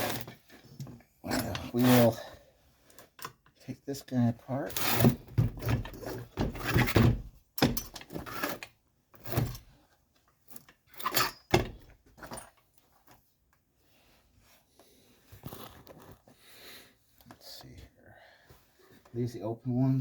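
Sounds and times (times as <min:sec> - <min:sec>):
metal parts and tools clattering: 0:10.5 - 0:12.6.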